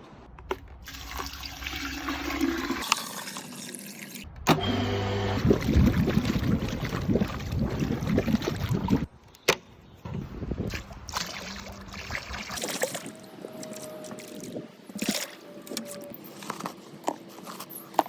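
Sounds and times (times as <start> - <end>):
water sloshing and splashing: 5.4 - 9.1, 10.6 - 16.6.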